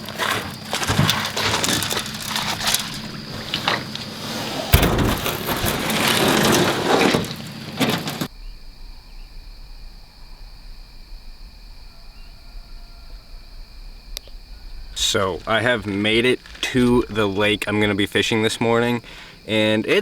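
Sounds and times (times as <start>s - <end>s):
gear clattering and rustling: 0.0s - 8.3s, 15.0s - 17.9s
insects chirping: 0.0s - 20.0s.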